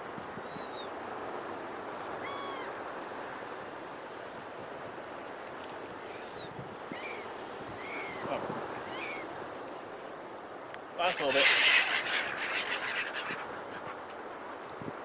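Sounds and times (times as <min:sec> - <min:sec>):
surf washing: 0:00.0 - 0:15.0
seagulls calling: 0:02.2 - 0:02.7, 0:06.0 - 0:09.3, 0:11.0 - 0:14.5.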